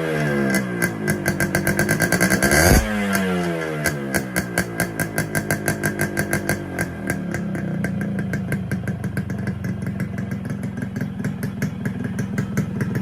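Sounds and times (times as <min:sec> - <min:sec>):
engine revving: 0:00.0 - 0:07.8
two-stroke motorcycle engine idling: 0:00.0 - 0:13.0
exhaust popping: 0:00.5 - 0:13.0.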